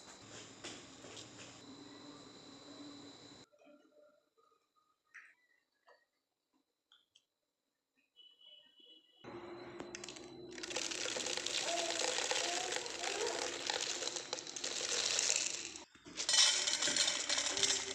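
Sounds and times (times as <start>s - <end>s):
puffed rice rustling in a bowl: 10.0s - 17.9s.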